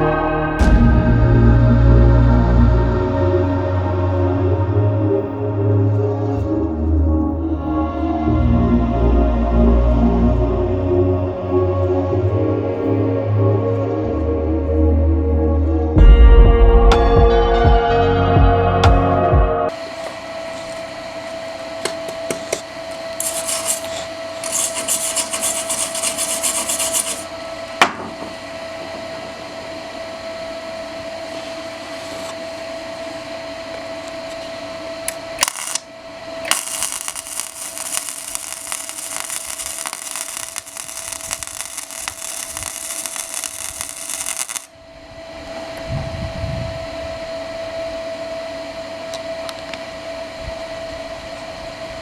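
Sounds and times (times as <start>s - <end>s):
welding arc crackling and hissing: 23.2s - 27.3s, 35.1s - 44.7s
steady tone: 35.3s - 45.4s.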